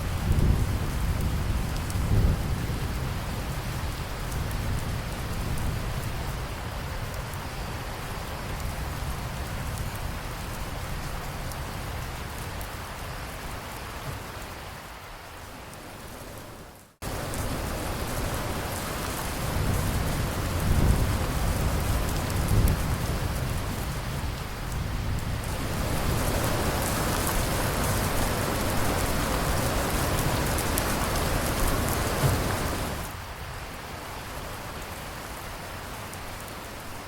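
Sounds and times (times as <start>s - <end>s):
low rolling thunder: 0.0s - 6.7s, 17.0s - 33.1s
heavy rain falling: 0.0s - 37.0s.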